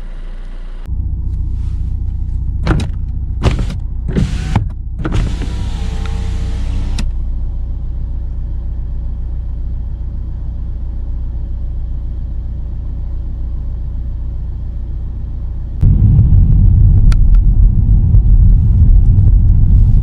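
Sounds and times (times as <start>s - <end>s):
car cabin road and engine rumble: 0.0s - 20.0s
electric window motor whining: 3.4s - 7.1s.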